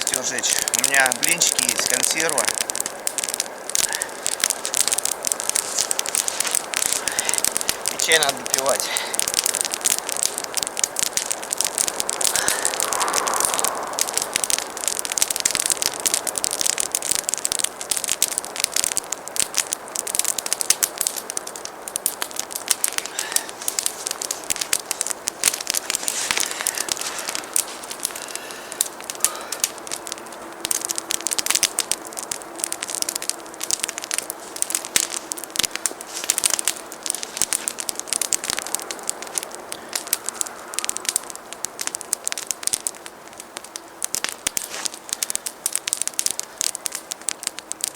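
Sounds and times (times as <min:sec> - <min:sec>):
campfire crackling and popping: 0:00.0 - 0:47.9.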